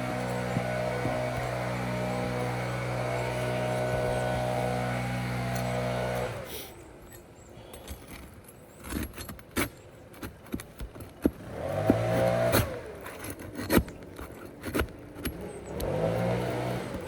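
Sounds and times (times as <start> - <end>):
motor hum: 0.0 - 6.5, 11.4 - 13.1, 15.2 - 17.0
tool prying at roof shingles: 7.8 - 17.0.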